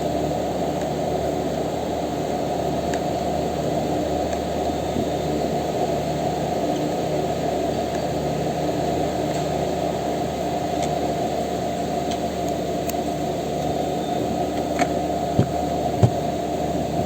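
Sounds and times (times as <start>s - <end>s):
steady low hum and hiss: 0.0s - 17.0s.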